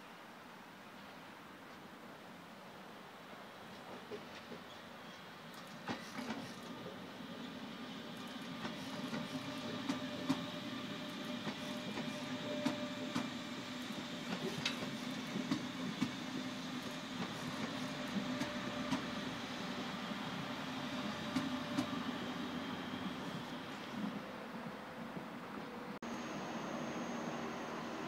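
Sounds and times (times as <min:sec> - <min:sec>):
train wheels rumbling on rail: 0:03.7 - 0:26.0
wheels clicking over rail joints: 0:11.3 - 0:19.2.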